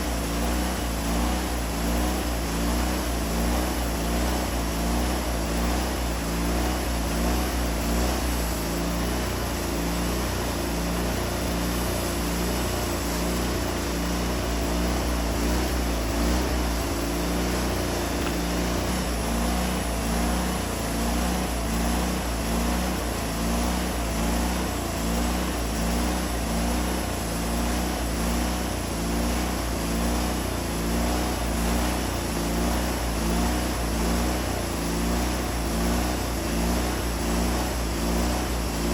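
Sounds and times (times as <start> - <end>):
faint wavering whine: 0.0 - 38.9
sawmill engine running: 0.0 - 38.9
band blade cutting log: 4.3 - 28.7.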